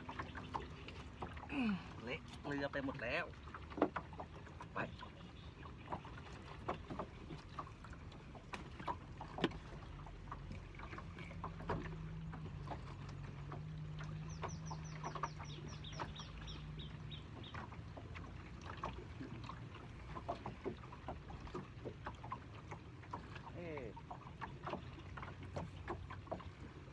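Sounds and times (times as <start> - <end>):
water washing: 0.0 - 26.9
knocks of fishing gear and hull: 3.6 - 4.4, 5.8 - 16.2.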